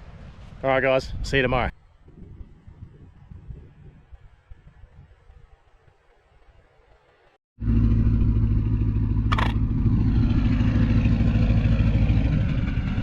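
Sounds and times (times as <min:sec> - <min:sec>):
motor engine running: 0:07.6 - 0:13.0.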